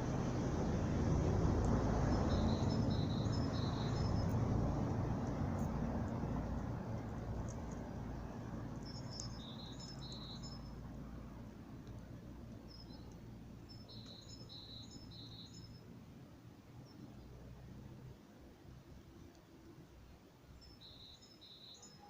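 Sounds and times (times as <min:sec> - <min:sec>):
low hum: 0:00.0 - 0:14.0
small bird chirping: 0:02.0 - 0:04.5, 0:05.2 - 0:10.9, 0:12.6 - 0:15.9, 0:20.5 - 0:22.0.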